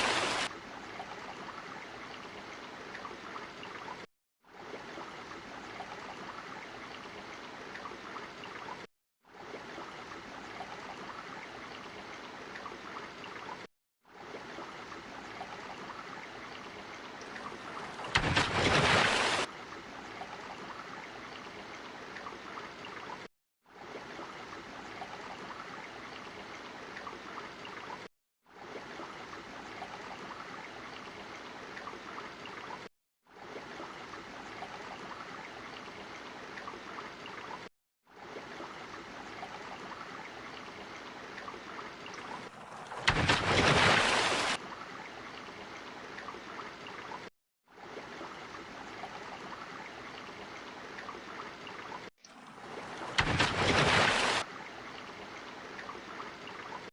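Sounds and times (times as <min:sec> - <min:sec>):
loud water rushing: 0:00.0 - 0:00.5, 0:52.4 - 0:54.4
water trickling and gurgling: 0:00.0 - 0:56.9.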